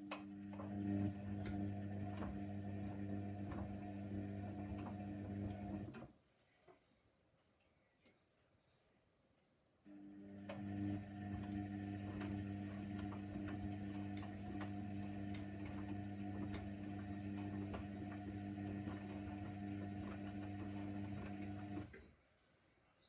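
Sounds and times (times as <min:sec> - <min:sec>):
washing machine humming: 0:00.0 - 0:06.1, 0:09.9 - 0:22.0.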